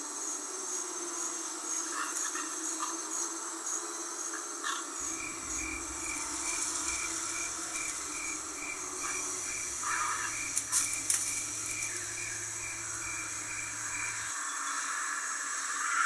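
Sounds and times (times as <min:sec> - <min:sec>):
high insect-like chirp: 0:00.0 - 0:16.0
steady high hiss: 0:03.3 - 0:16.0
low hum: 0:05.0 - 0:14.3.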